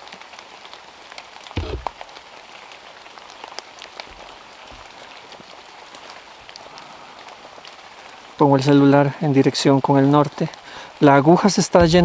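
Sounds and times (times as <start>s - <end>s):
rain on foliage: 0.0s - 12.0s
loud low thump: 1.6s - 1.9s, 11.8s - 12.0s.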